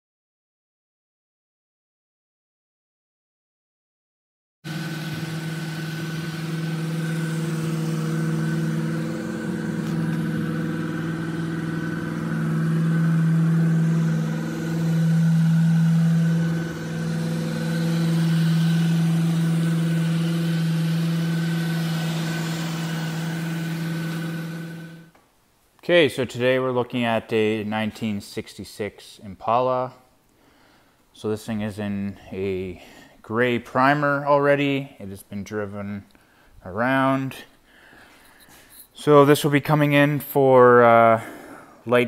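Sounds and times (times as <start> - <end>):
car engine idling: 4.7 - 25.1.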